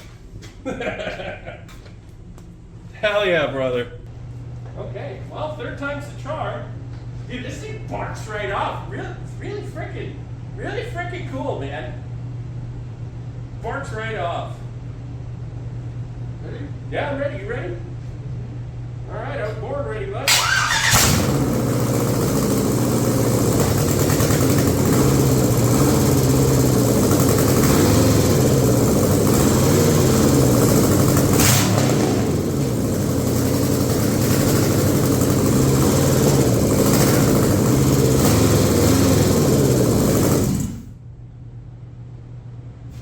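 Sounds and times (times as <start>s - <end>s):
car engine running: 20.3s - 41.0s.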